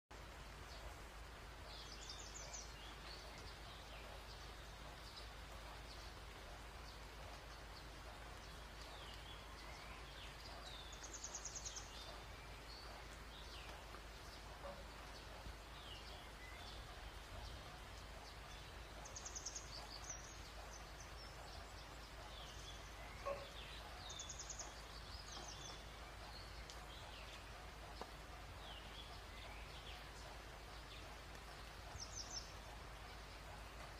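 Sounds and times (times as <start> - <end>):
bird chirps: 8.4 - 33.3.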